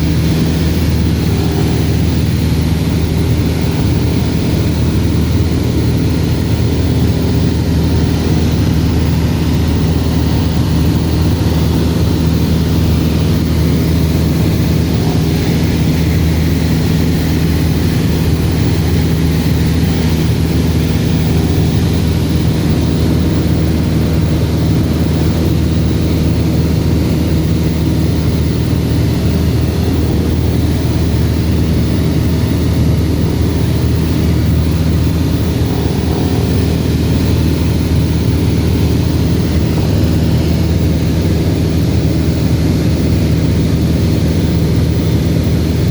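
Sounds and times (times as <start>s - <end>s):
propeller plane engine drone: 0.0s - 45.9s.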